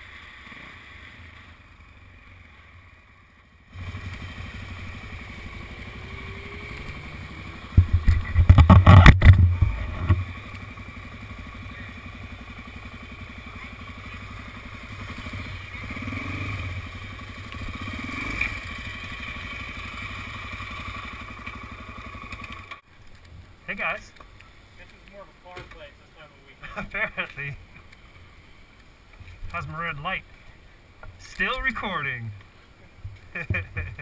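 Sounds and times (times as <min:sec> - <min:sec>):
motorcycle engine running: 0:00.0 - 0:22.8.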